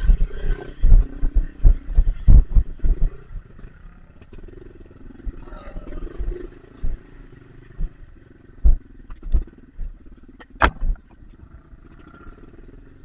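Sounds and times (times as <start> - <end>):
dirt bike engine at low revs: 0.0 - 13.0
sharp knocks: 10.6 - 11.2.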